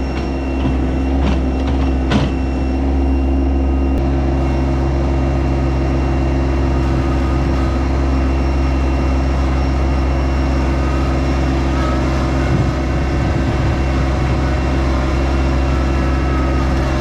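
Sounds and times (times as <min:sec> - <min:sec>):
diesel tractor engine running: 0:00.0 - 0:17.0.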